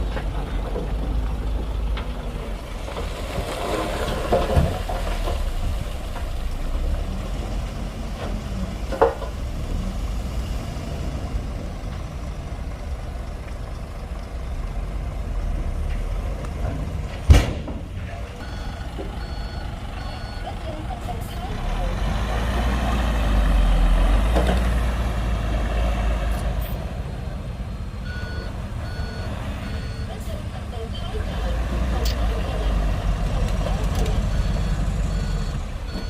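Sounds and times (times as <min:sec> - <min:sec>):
bulldozer diesel engine running: 0:00.0 - 0:36.0
sharp crack: 0:17.1 - 0:18.1
loud thump: 0:17.2 - 0:18.0
reversing alarm beeping: 0:18.4 - 0:20.6, 0:28.0 - 0:30.4, 0:34.2 - 0:36.0.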